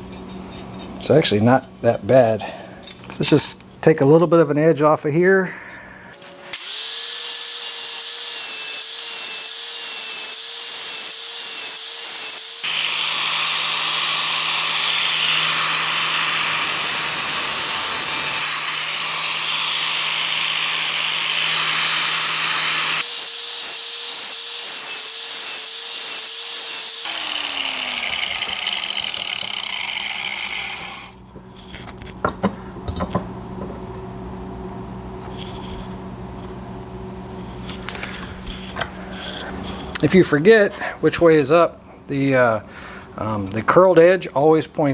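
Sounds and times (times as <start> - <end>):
power grinder grinding metal: 6.2 - 31.2.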